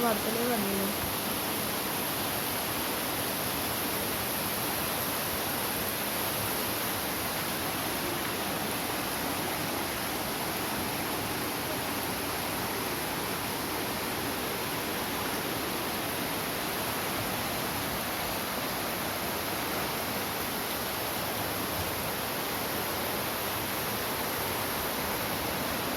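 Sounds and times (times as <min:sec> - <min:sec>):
floodwater rushing: 0:00.0 - 0:25.9.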